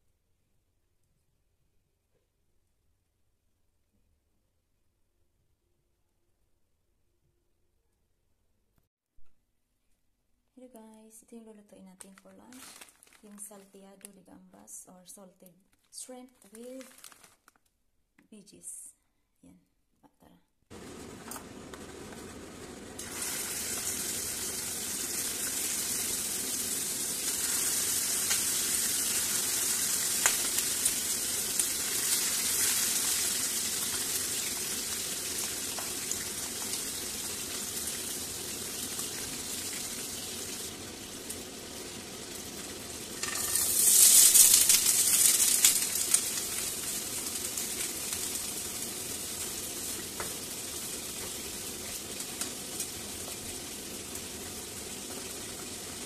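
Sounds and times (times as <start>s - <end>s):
chicken sizzling in hot oil: 20.7s - 56.0s
oil spitting and crackling: 43.2s - 48.5s.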